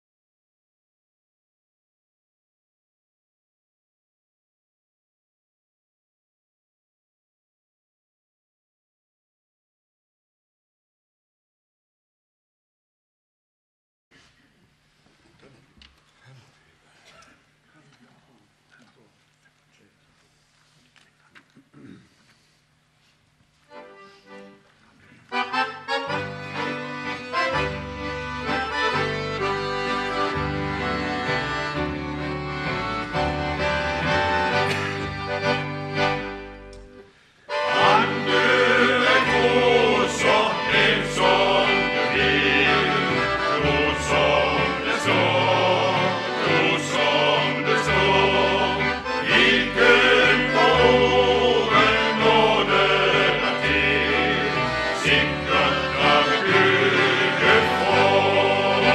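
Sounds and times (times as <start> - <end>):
accordion gospel music: 23.0 - 58.9
steady bass line: 25.6 - 37.0, 37.7 - 58.9.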